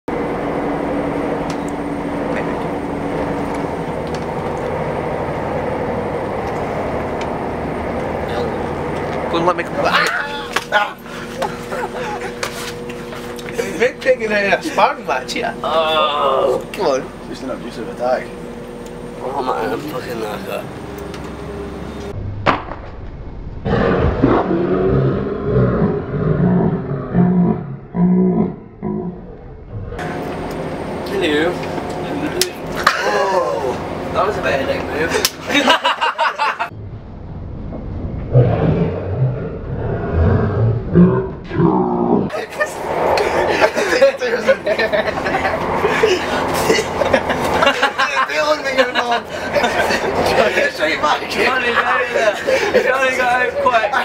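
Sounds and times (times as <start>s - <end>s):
steady hum: 0.1s - 54.0s
sharp crack: 22.2s - 24.4s
loud roaring growls: 23.6s - 30.1s, 36.8s - 43.9s.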